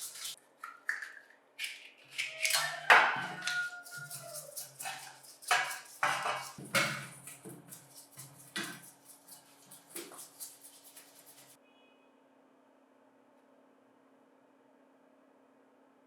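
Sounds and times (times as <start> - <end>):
rasping strokes on metal: 2.5 - 11.6.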